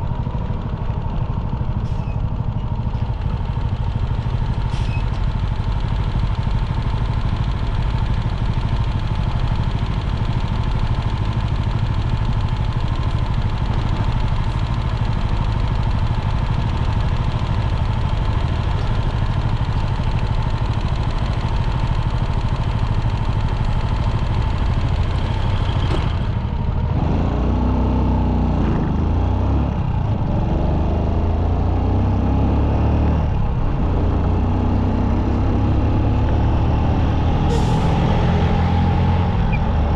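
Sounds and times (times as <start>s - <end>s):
motorcycle engine running: 0.0s - 37.5s.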